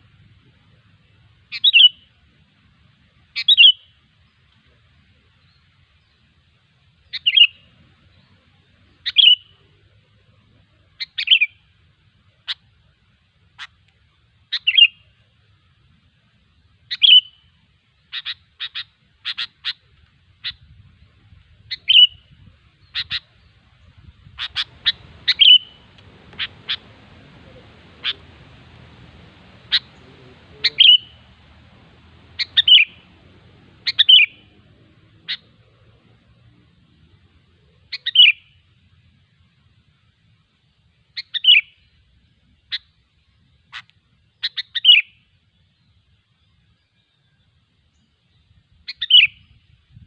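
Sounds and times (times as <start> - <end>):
bird chirps and clicks: 24.4 - 34.6, 43.8 - 45.0.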